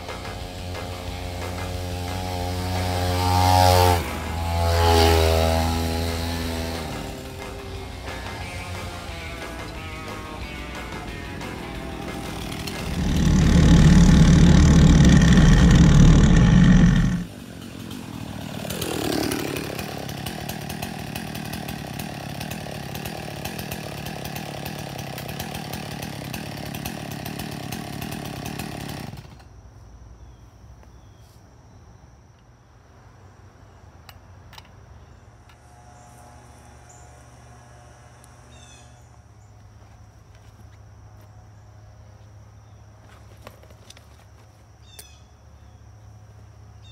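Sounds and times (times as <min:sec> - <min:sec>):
chainsaw engine running: 0:00.0 - 0:29.6, 0:35.6 - 0:39.4
faint bird chirps: 0:30.2 - 0:32.1.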